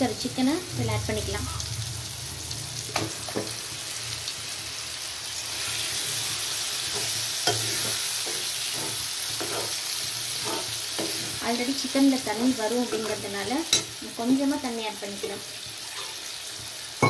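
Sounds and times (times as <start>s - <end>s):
chicken sizzling in pan: 0.0s - 17.0s
spoon knocking and scraping pan: 6.9s - 9.8s, 10.4s - 11.4s, 12.8s - 13.9s.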